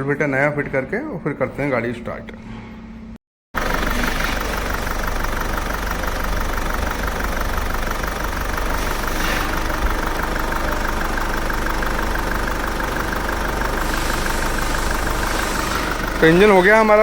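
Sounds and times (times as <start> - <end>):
diesel car engine idling: 3.6 - 17.0.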